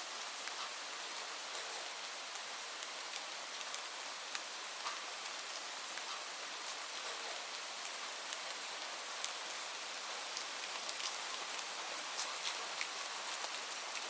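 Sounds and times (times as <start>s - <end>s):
rain falling on leaves: 0.0s - 14.0s.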